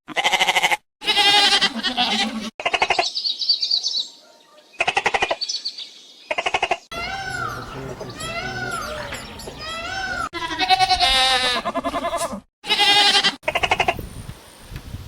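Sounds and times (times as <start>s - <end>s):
goats bleating: 0.1s - 3.0s, 6.9s - 13.8s
bird chirping: 2.9s - 10.3s.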